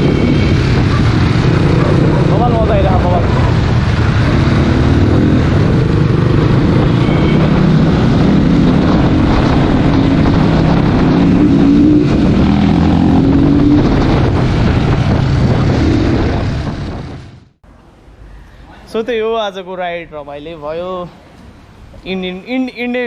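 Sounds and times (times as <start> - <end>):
dirt bike engine revving: 0.0 - 16.7
wind noise on microphone: 0.0 - 17.6.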